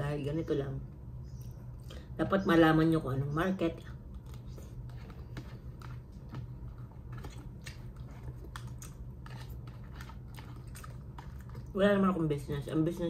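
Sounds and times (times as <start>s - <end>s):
steady low hum: 0.0s - 13.0s
person chewing: 4.1s - 11.7s.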